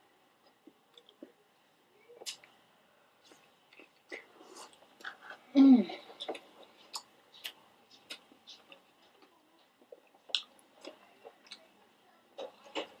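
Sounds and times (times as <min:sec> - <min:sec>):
chewing pizza: 0:03.2 - 0:13.0.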